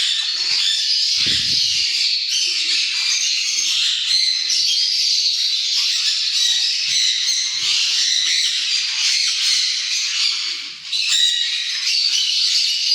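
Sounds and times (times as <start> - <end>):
flock of parrots calling: 0.0 - 2.0.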